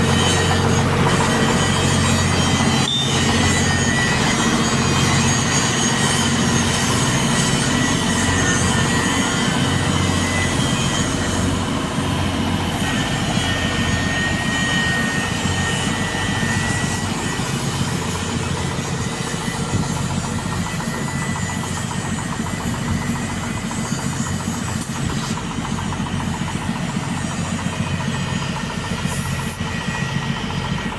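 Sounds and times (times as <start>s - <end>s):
heavy engine idling: 0.0s - 30.9s.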